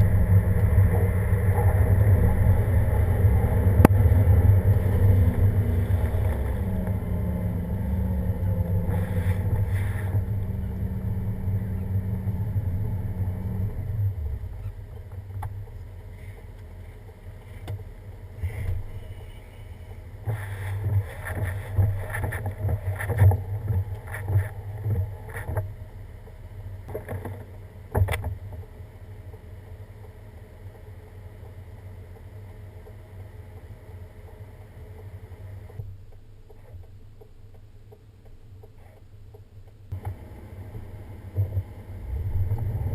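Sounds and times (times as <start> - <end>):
vehicle engine rumble: 0.0 - 42.9
bumps and rustles: 20.2 - 25.7.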